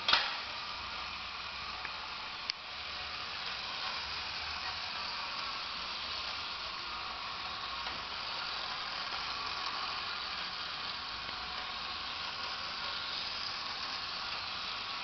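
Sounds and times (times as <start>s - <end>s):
toy car mechanism whirring: 0.0s - 15.0s.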